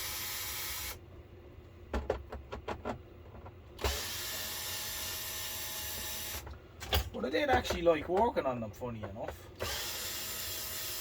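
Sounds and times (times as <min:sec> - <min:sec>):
power screwdriver running: 0:00.0 - 0:01.0, 0:03.8 - 0:06.4, 0:09.6 - 0:11.0.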